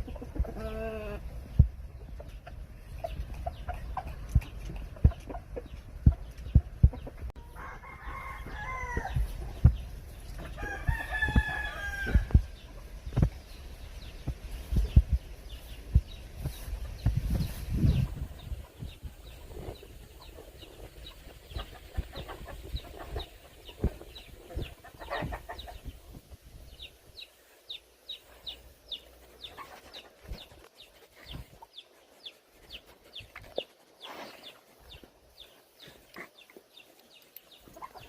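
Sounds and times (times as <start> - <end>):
chicks peeping: 0.0 - 7.5, 8.4 - 38.0
chickens clucking: 0.0 - 38.0
low knocks and thumps: 3.2 - 7.4, 9.0 - 13.4, 14.2 - 15.3.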